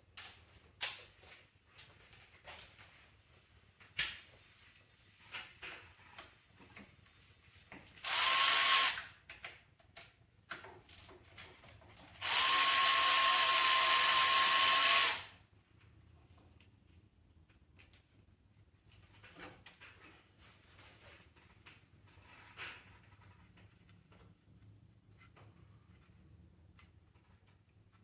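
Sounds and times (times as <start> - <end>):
power drill whining: 8.0 - 9.1, 12.2 - 15.4.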